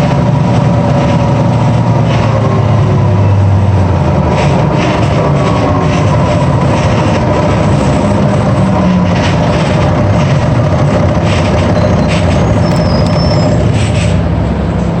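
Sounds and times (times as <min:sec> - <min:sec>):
bus diesel engine: 0:00.0 - 0:15.0
road noise: 0:00.0 - 0:15.0.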